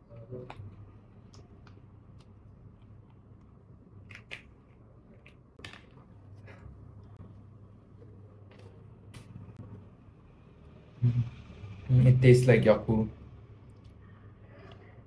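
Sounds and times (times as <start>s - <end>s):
faint clicks and crackles of eating: 0.0s - 3.5s
low steady hum: 0.0s - 15.0s.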